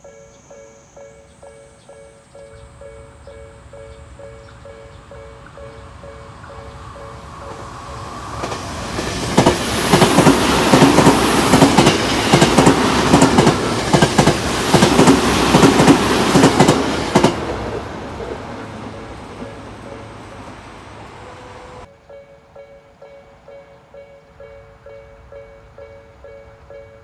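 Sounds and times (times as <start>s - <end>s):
electric train passing: 0.0s - 27.0s.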